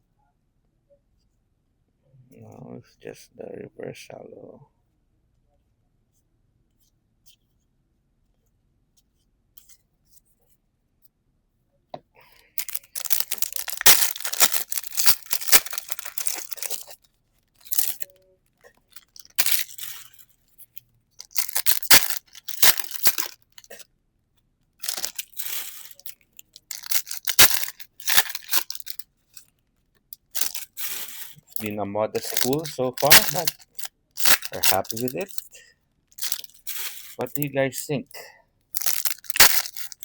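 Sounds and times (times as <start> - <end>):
foil wrapper crinkling and tearing: 12.4 - 20.4, 21.2 - 23.8, 24.8 - 29.5, 30.1 - 35.5, 36.1 - 37.5, 38.8 - 40.0.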